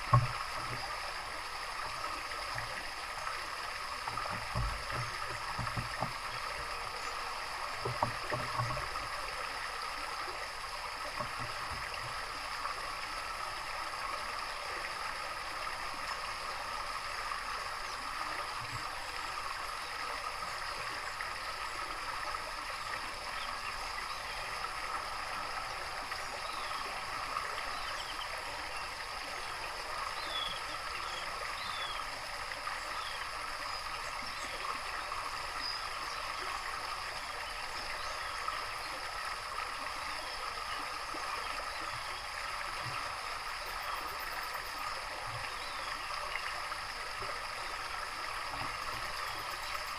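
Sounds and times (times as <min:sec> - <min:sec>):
running water: 0:00.0 - 0:49.9
soft low knocks: 0:04.1 - 0:06.6.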